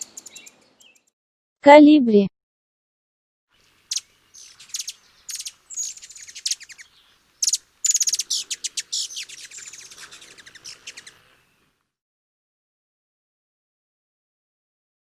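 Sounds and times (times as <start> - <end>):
hummingbird chirping: 0.0 - 1.1, 3.6 - 11.6.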